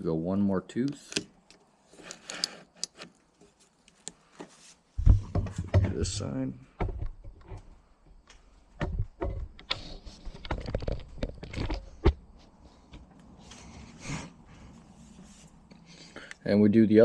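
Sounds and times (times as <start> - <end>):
chainsaw chain clicks and knocks: 1.2 - 3.2.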